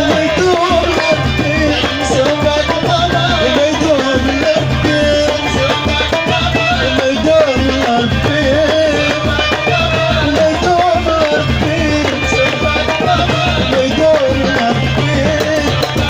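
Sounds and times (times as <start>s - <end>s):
hand drums beating: 0.0s - 16.0s.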